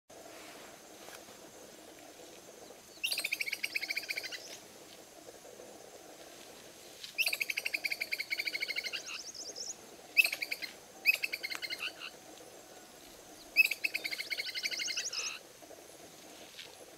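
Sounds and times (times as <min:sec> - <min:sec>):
faint steady hum: 0:00.1 - 0:16.9
bird trilling: 0:07.2 - 0:12.1, 0:13.5 - 0:15.4.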